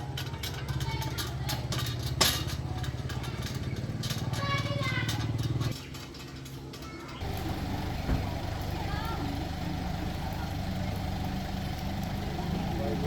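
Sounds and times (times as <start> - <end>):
small engine running: 7.2 - 13.0.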